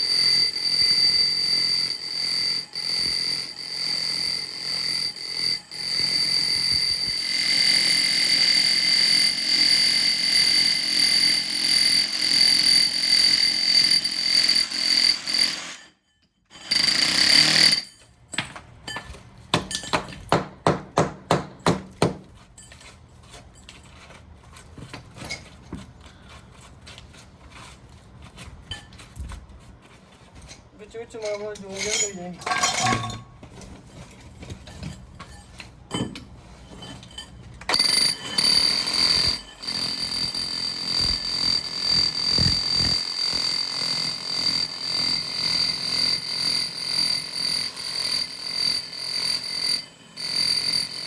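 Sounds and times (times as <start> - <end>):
rotary hammer drilling into brick: 0.0 - 15.9, 16.5 - 18.0, 37.7 - 51.0.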